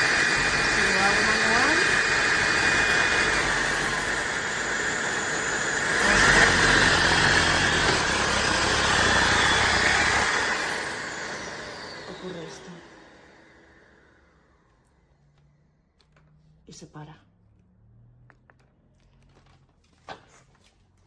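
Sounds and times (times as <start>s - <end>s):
stick vacuum whining: 0.0s - 15.5s.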